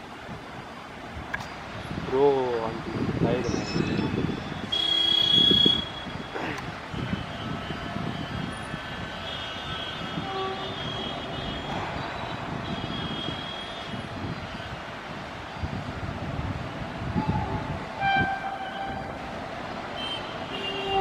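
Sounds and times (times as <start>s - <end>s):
train rumbling: 16.0s - 21.0s.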